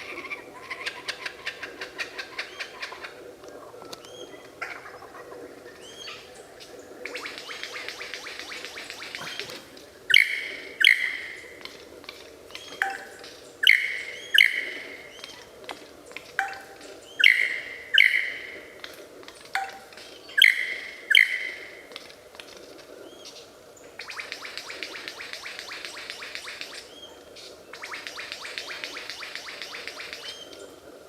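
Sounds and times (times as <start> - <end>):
bird calling in paired notes: 7.1 - 11.8, 12.5 - 15.6, 16.3 - 18.8, 19.5 - 21.9.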